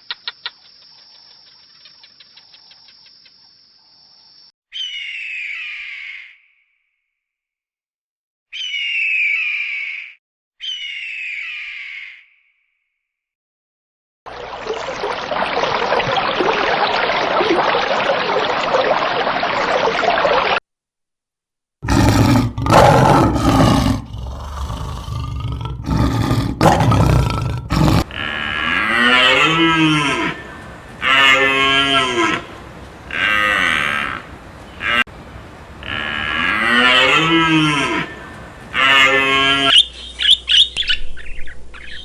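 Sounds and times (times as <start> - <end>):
cattle mooing: 26.7 - 39.7
steady noisy hiss: 28.0 - 39.7.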